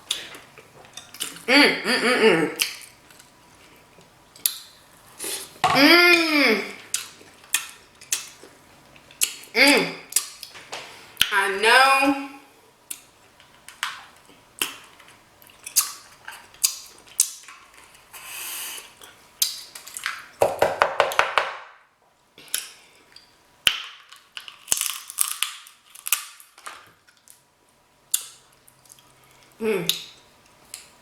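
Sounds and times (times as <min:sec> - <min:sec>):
crab shell cracking and snipping: 0:23.7 - 0:27.4.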